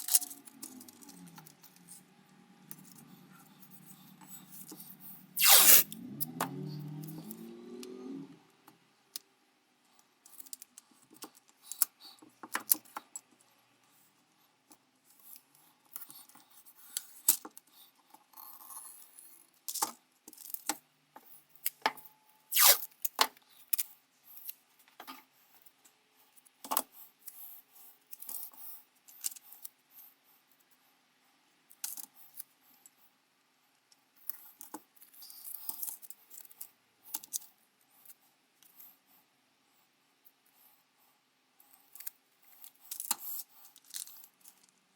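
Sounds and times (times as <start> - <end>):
small metal parts clinking: 0.0 - 1.4, 42.9 - 44.7.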